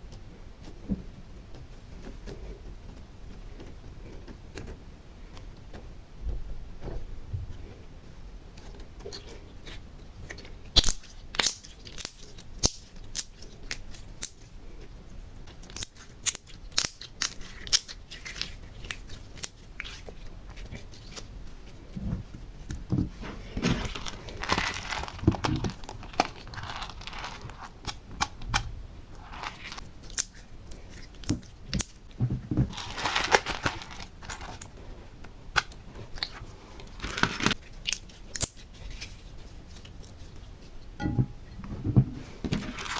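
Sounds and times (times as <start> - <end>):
crinkling tearing rustle: 23.1 - 28.6, 29.2 - 34.9, 35.6 - 40.6, 42.5 - 42.9.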